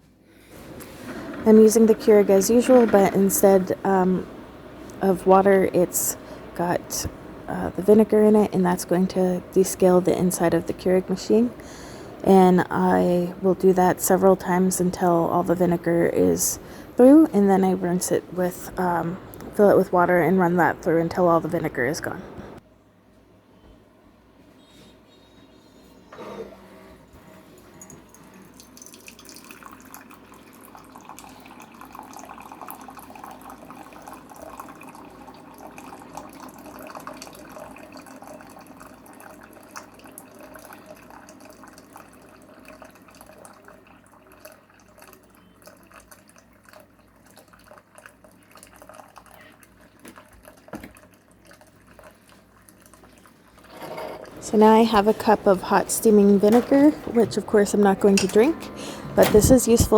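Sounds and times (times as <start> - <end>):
hot liquid streaming into a mug: 28.8 - 55.0.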